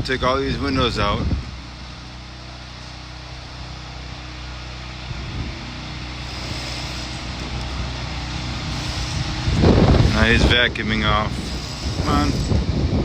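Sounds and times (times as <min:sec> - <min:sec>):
machinery engine humming: 0:00.0 - 0:13.0.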